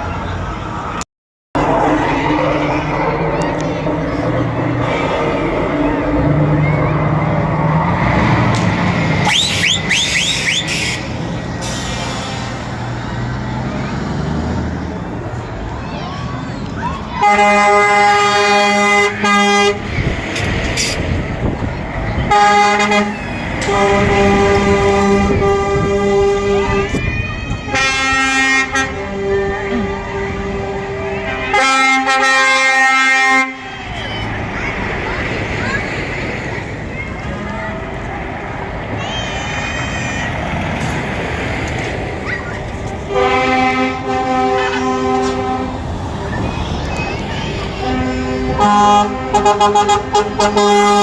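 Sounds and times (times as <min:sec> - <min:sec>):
heavy vehicle engine and road noise: 0:00.0 - 0:51.0
truck air horn blasts: 0:09.0 - 0:13.0, 0:17.2 - 0:20.1, 0:22.2 - 0:33.9, 0:43.0 - 0:46.0, 0:47.7 - 0:51.0.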